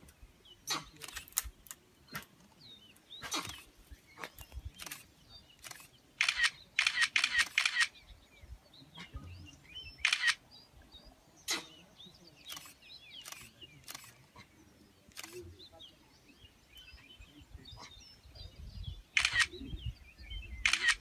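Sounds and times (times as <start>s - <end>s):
faint bird chirps: 0.2s - 21.0s
camera shutters clicking: 1.0s - 1.8s, 4.8s - 7.9s, 10.0s - 10.4s, 12.5s - 14.1s, 15.1s - 15.4s, 19.2s - 19.6s, 20.6s - 21.0s.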